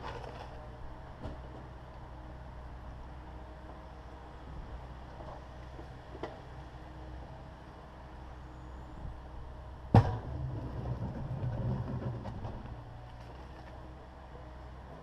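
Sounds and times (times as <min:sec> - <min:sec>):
broken concrete grinding and scraping: 0:10.2 - 0:13.7.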